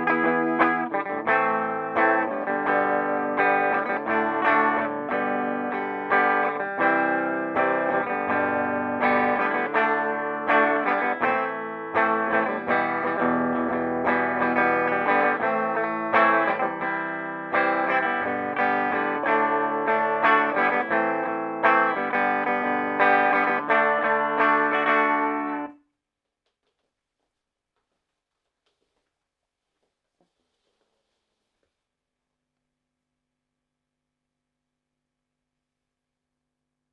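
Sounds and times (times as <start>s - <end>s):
clean electric guitar chords: 0.0s - 25.8s.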